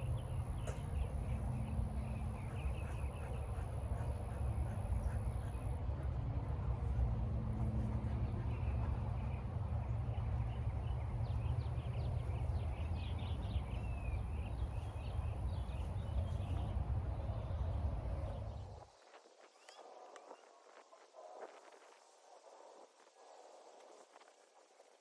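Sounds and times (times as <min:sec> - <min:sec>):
low steady rumble: 0:00.0 - 0:18.9
birds chirping: 0:00.0 - 0:20.4.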